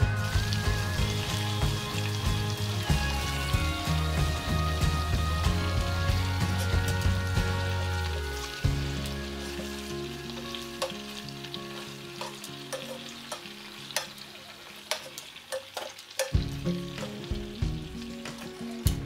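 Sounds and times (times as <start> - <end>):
chicken sizzling in hot oil: 0.0 - 19.0
metal tongs scraping a pot: 11.8 - 14.2.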